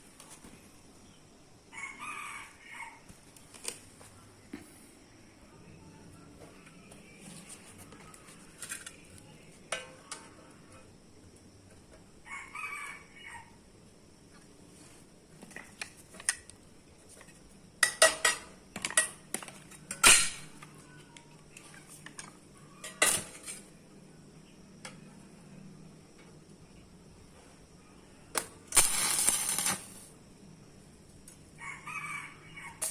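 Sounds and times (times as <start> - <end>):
steel plate and tools clanking: 17.8 - 19.1, 28.8 - 29.9.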